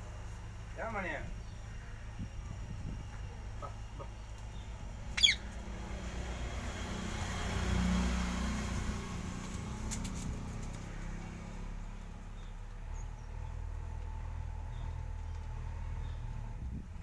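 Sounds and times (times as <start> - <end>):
parrot squawk: 5.1 - 5.5.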